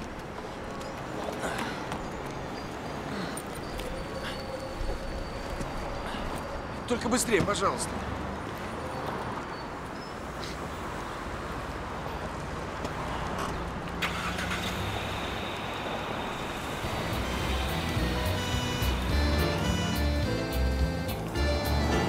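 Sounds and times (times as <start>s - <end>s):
background music: 16.8s - 22.0s.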